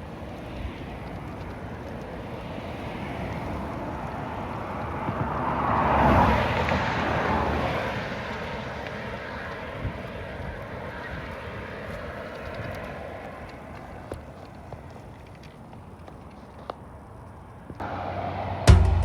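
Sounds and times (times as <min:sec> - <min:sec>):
vehicle passing by: 0:01.9 - 0:12.2, 0:17.8 - 0:19.0.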